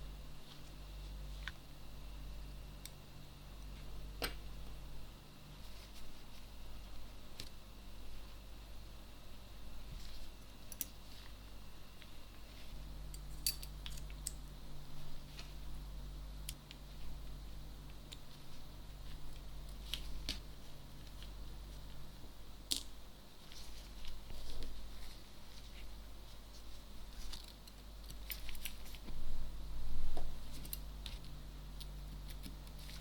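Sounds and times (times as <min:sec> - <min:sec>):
low steady hum: 0:00.0 - 0:33.0
small tools clicking and tapping: 0:13.1 - 0:14.4.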